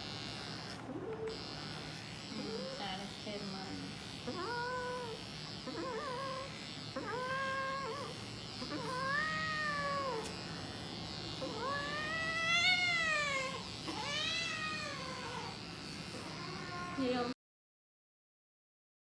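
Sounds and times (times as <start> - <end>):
cat yowling: 4.3 - 10.3, 11.4 - 15.6.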